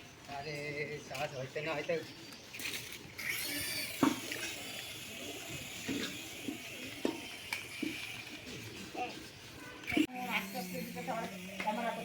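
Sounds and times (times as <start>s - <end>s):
toy helicopter rotor whine: 2.6s - 12.0s.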